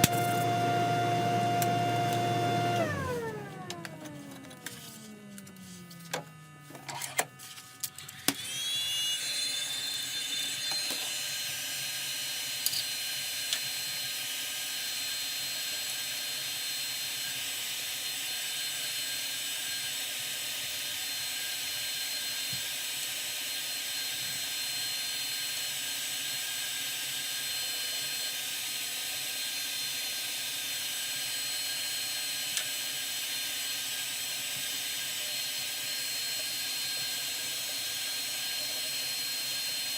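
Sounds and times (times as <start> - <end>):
lathe motor spinning: 0.0 - 6.6, 8.2 - 17.1, 29.4 - 39.9.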